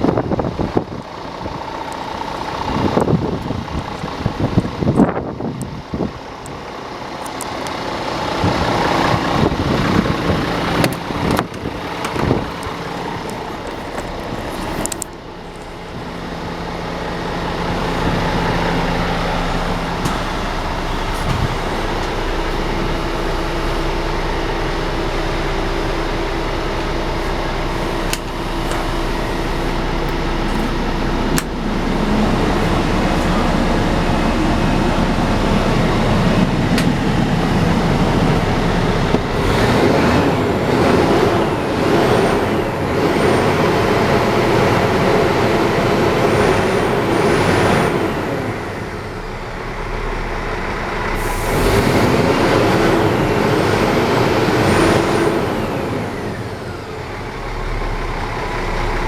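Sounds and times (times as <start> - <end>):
truck diesel engine running: 0.0 - 59.0.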